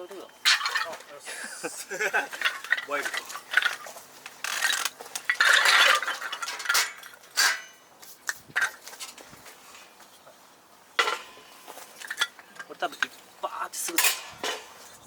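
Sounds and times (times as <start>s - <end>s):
cookware clattering and scraping: 0.4s - 1.2s, 1.9s - 7.8s, 11.0s - 13.2s, 13.8s - 15.0s.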